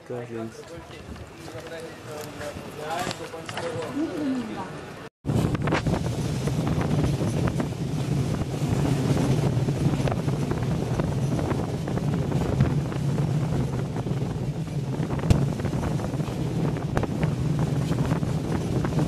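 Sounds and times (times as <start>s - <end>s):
wind buffeting microphone: 5.2s - 19.0s
train wheels rumbling on rails: 5.3s - 19.0s.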